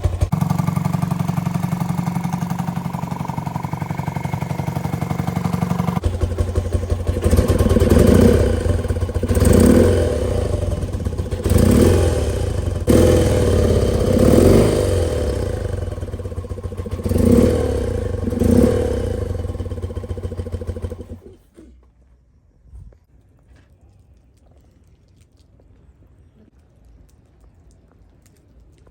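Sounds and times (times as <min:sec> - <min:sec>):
motorcycle engine revving: 0:00.0 - 0:21.7.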